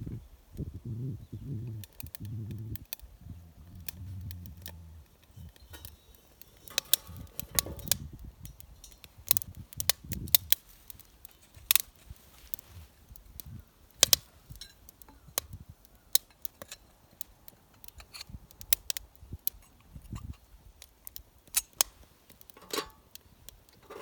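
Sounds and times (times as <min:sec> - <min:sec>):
low hum: 0:00.7 - 0:08.2
metallic clicks and clinks: 0:05.2 - 0:09.9, 0:22.4 - 0:23.1.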